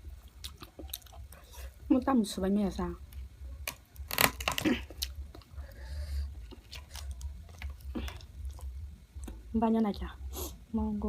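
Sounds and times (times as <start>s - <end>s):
steady low hum: 0.0s - 11.0s
chewing with wet mouth smacks: 0.2s - 1.7s, 6.4s - 9.4s.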